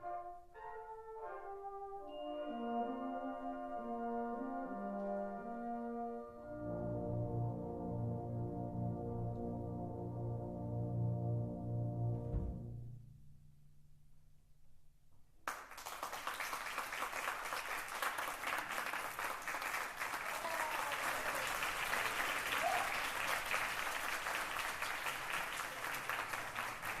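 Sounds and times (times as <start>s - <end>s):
audience applause: 15.5s - 27.0s.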